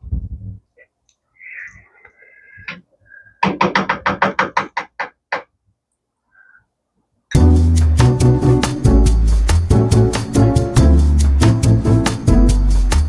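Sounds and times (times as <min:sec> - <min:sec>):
music: 0:07.3 - 0:13.0.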